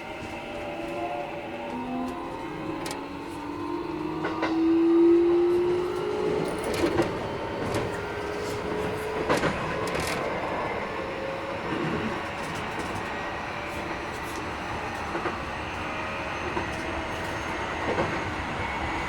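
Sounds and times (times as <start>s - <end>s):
train running rumble: 0.0s - 19.0s
wheels clicking over rail joints: 5.9s - 10.7s.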